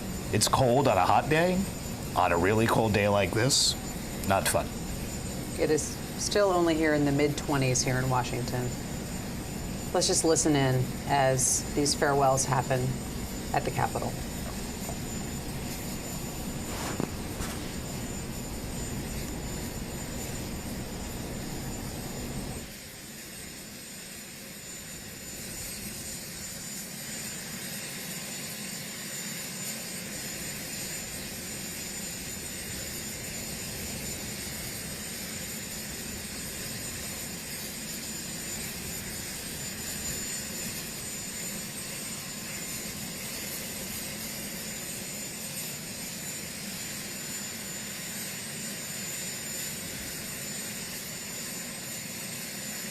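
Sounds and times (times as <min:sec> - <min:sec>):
helicopter turbine whine: 0:00.0 - 0:52.9.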